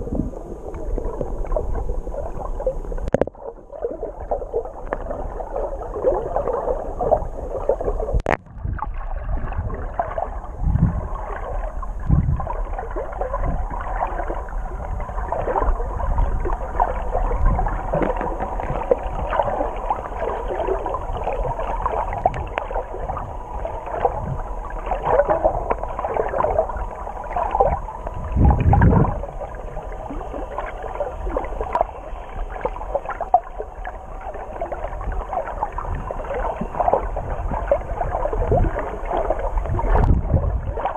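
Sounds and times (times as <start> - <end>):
underwater water gurgling: 0.0 - 40.9.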